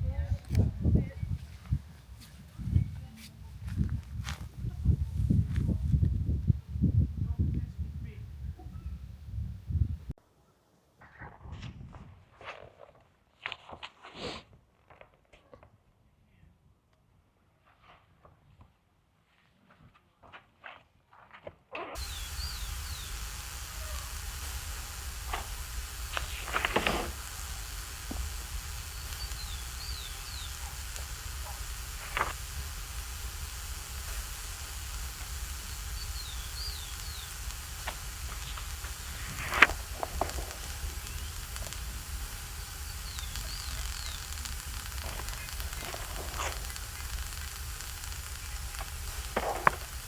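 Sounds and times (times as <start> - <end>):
wind rumbling on microphone: 0.0 - 10.1, 22.0 - 50.0
food sizzling in a frying pan: 22.0 - 50.0.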